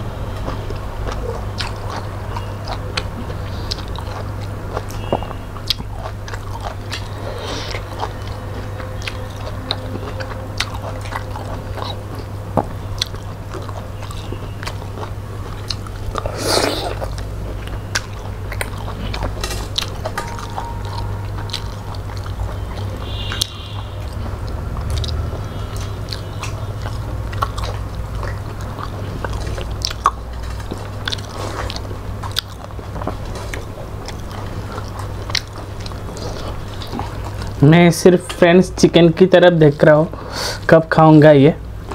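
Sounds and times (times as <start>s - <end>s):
chewing and wet mouth sounds: 0.2s - 40.8s
steady low hum: 5.4s - 37.6s.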